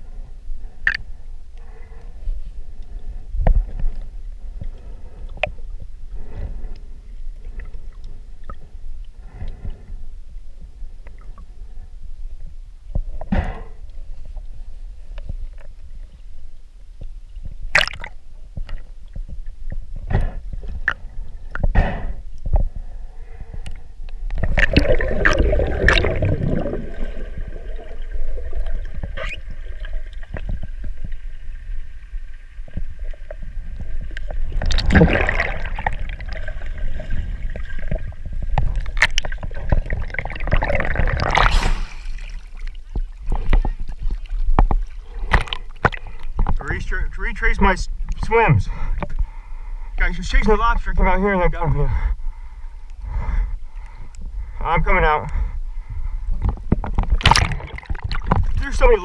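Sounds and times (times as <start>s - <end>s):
underwater gurgling and bubbling: 17.6s - 46.6s, 56.4s - 59.0s.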